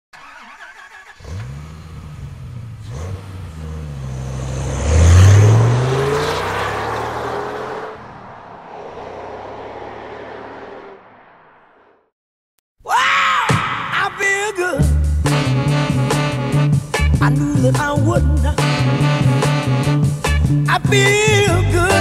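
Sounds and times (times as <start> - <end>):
vehicle engine revving: 0.2 - 12.0.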